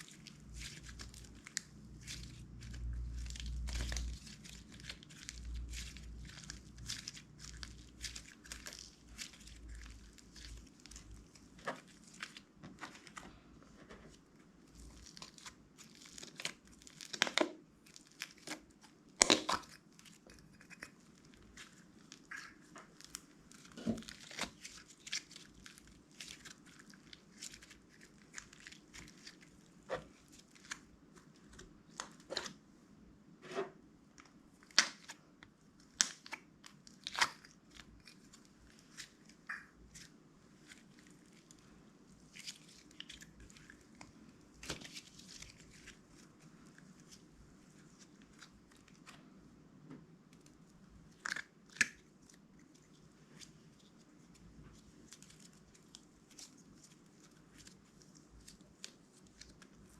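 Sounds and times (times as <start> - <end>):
slime sticky pops and crackles: 16.1 - 19.8, 35.9 - 37.8.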